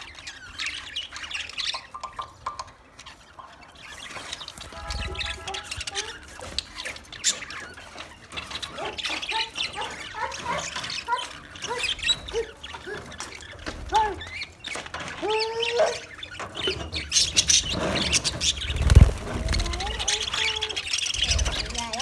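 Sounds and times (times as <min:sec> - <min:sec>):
budgerigars chirping and chattering: 0:00.0 - 0:22.0
harsh bird squawks: 0:17.2 - 0:22.0.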